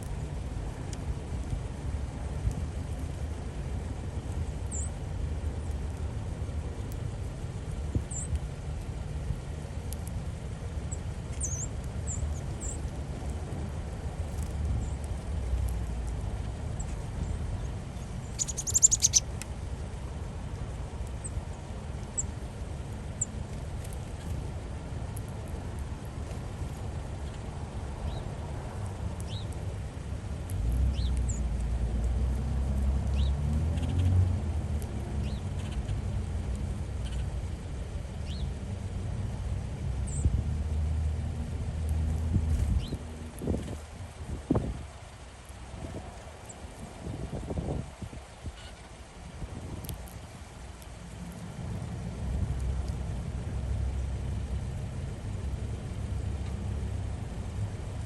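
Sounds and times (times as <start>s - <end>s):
steady low rumble: 0.0s - 58.0s
bird chirping: 11.3s - 12.8s, 17.6s - 19.2s
high bird chirps: 18.2s - 19.2s.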